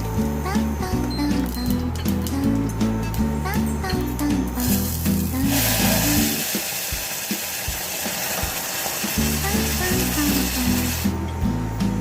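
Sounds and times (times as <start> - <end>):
background music: 0.0 - 12.0
food sizzling in hot oil: 4.6 - 11.2.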